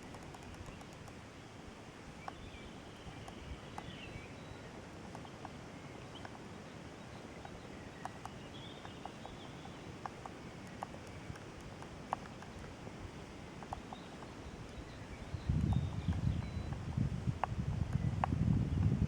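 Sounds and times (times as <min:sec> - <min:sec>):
small clicks: 0:00.0 - 0:01.2, 0:07.4 - 0:19.0
faint bird chirps: 0:02.2 - 0:11.4, 0:12.1 - 0:19.0
wind buffeting microphone: 0:12.5 - 0:19.0.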